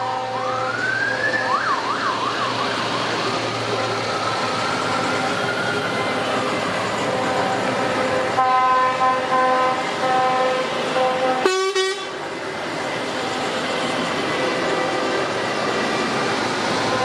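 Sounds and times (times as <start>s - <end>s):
multi-note truck air horn: 0.0s - 0.5s, 7.1s - 12.2s
traffic hum: 0.0s - 17.0s
harsh short horn blast: 8.4s - 12.2s.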